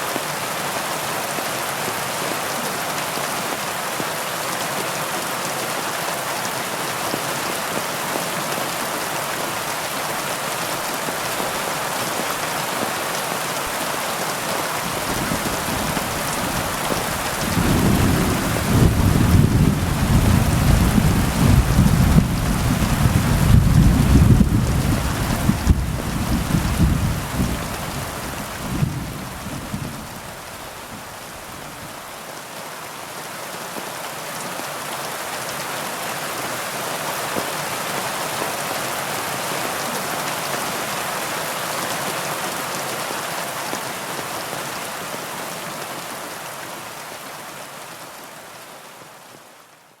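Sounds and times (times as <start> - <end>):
heavy rain falling: 0.0 - 49.8
low rumble of thunder: 14.9 - 31.8.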